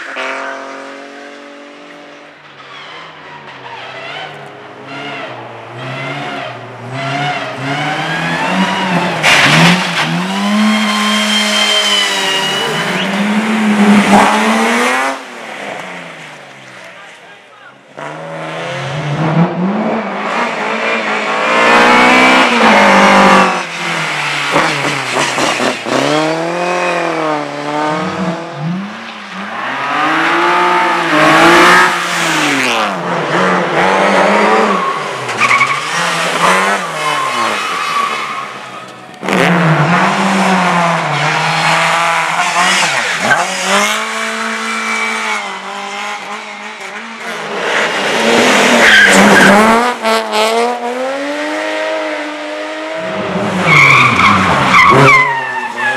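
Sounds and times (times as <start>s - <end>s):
race car engines revving: 0.0s - 55.9s
tyre squeal: 10.7s - 13.2s, 36.7s - 39.0s, 53.6s - 55.9s.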